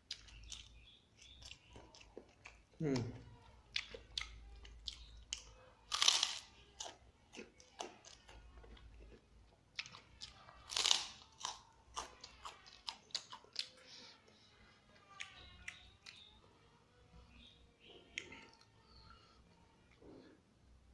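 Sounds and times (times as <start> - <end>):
wet chewing clicks: 0.0 - 3.1, 3.7 - 13.8, 15.1 - 16.4.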